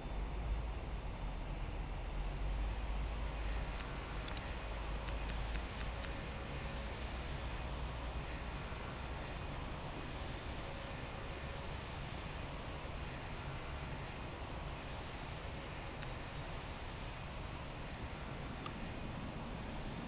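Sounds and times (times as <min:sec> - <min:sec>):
faint clicks: 0:03.6 - 0:06.2.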